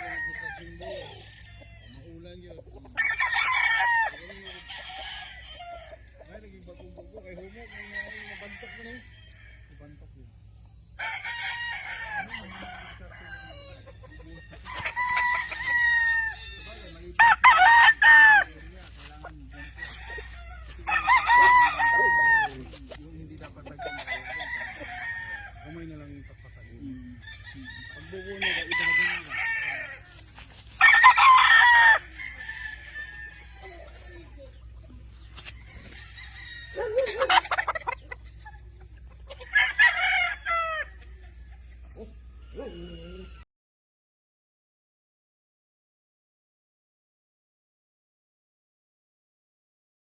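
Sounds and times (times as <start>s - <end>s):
rooster crowing: 0.0s - 2.2s, 3.0s - 6.2s, 7.5s - 10.0s, 11.0s - 34.6s, 35.5s - 38.0s, 39.3s - 41.2s
chickens clucking: 0.0s - 11.0s, 11.6s - 43.4s.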